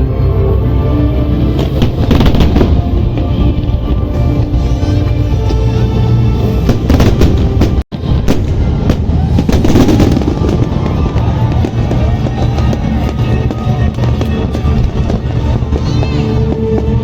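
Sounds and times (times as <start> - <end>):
background music: 0.0 - 17.0
fireworks crackling and popping: 1.6 - 4.8, 6.6 - 17.0.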